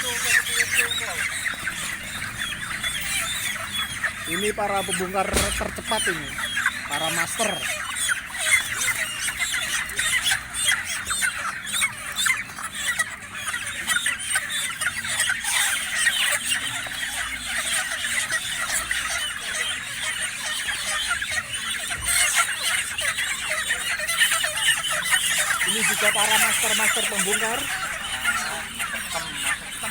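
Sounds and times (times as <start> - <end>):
chickens squawking and clucking: 0.0 - 29.9
knocks: 5.3 - 6.1.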